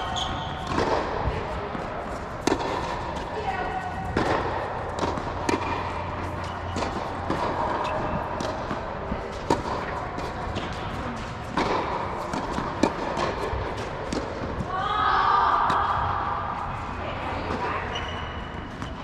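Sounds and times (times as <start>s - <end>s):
tennis balls struck by rackets: 0.0s - 14.7s
tennis balls bouncing on court: 0.0s - 14.8s, 15.5s - 19.0s.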